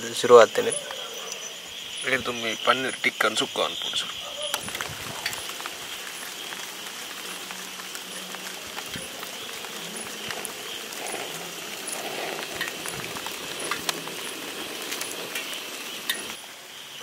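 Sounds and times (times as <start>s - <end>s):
camping stove flame hissing: 0.0s - 17.0s
light rain falling: 0.0s - 17.0s
sharp raindrop ticks: 3.1s - 16.4s.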